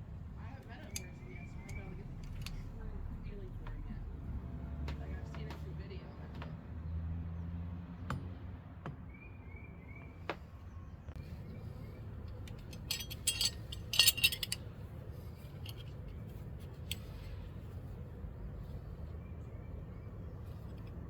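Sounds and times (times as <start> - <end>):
metal parts clinking and rattling: 0.8 - 2.8, 12.2 - 17.6
metal jangling burst: 12.3 - 14.7.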